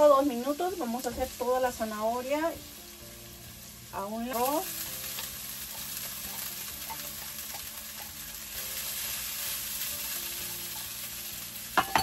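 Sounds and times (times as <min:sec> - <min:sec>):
rice sizzling in skillet: 0:00.0 - 0:12.0
spatula scraping pan: 0:05.1 - 0:10.9.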